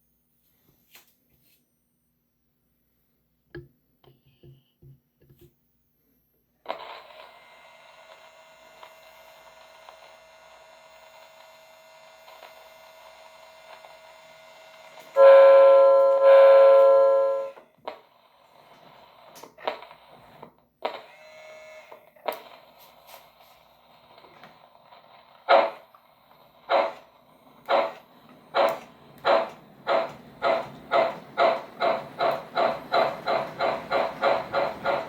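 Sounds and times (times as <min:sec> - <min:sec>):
model train running hum: 0:07.6 - 0:17.6, 0:24.0 - 0:35.0
model train horn blasts: 0:15.1 - 0:17.6.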